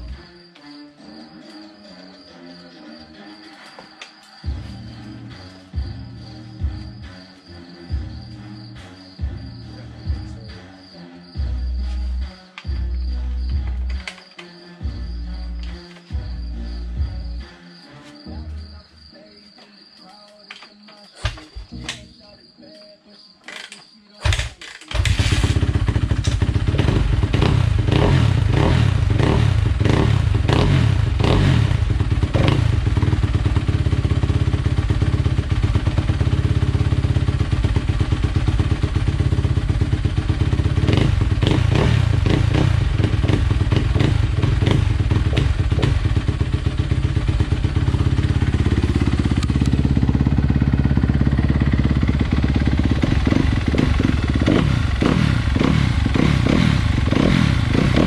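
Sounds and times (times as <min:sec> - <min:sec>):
dirt bike engine revving: 0:24.2 - 0:58.0.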